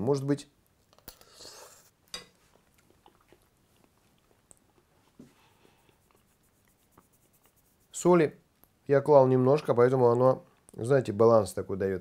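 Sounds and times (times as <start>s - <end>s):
person chewing: 0.8s - 7.6s.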